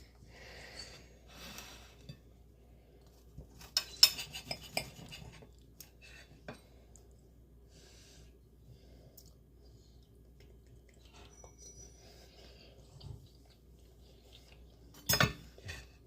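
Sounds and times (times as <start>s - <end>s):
plate and utensils clinking: 15.0s - 15.9s.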